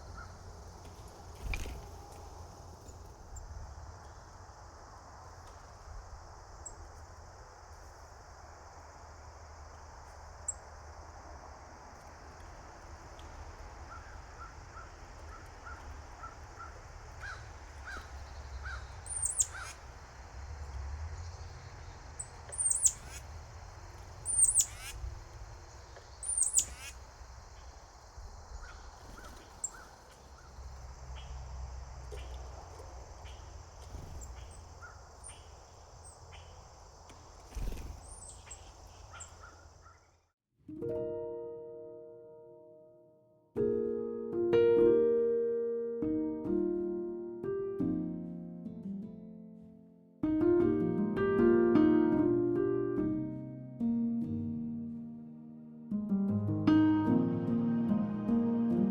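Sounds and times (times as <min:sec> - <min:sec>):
birds calling short repeated notes: 0:13.8 - 0:20.2, 0:21.8 - 0:40.0
sharp very high bird calls: 0:13.9 - 0:20.1, 0:22.2 - 0:27.8.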